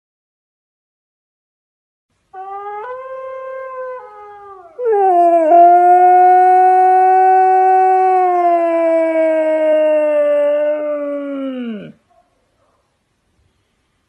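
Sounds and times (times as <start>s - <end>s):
dog howl from phone speaker: 2.4s - 12.0s
husky howling: 2.4s - 12.0s.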